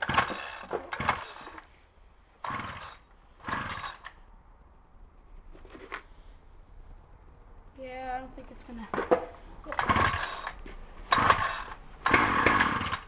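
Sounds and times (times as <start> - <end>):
engine turning over: 0.0 - 1.6, 2.4 - 4.2, 9.7 - 13.0
pull-cord starter whirring: 0.0 - 1.7, 2.4 - 4.2, 9.7 - 13.0.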